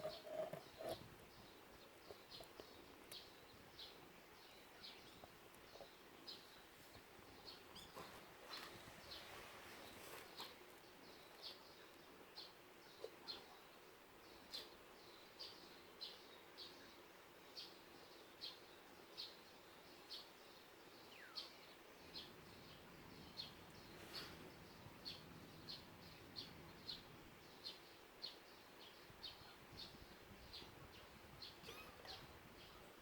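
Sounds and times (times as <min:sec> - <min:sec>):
small bird chirping: 0:00.0 - 0:06.7, 0:07.4 - 0:13.8.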